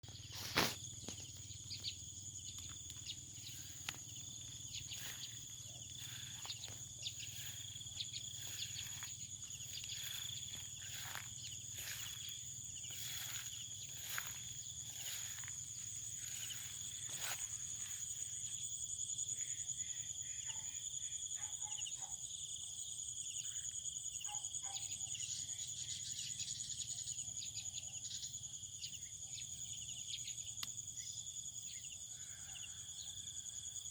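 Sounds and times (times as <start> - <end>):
insect trill: 0.0 - 33.9
short insect chirps: 0.1 - 20.4.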